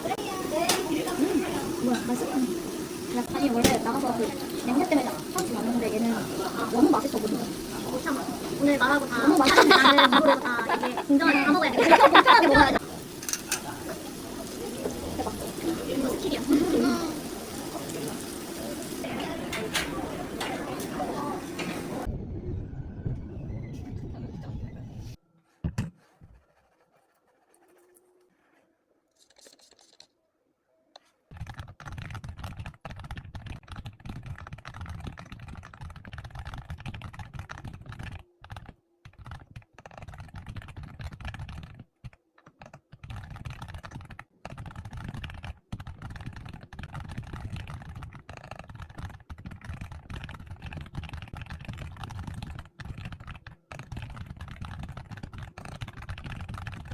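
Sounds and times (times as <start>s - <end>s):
typing on computer keyboard: 31.3s - 56.9s.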